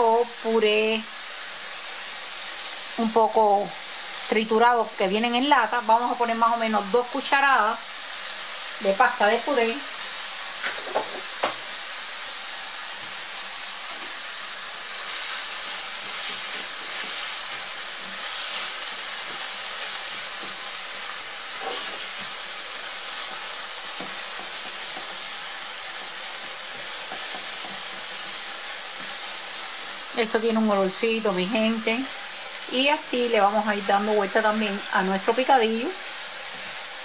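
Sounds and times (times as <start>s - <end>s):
meat sizzling in a frying pan: 0.0s - 37.0s
spatula scraping a pan: 14.9s - 30.0s.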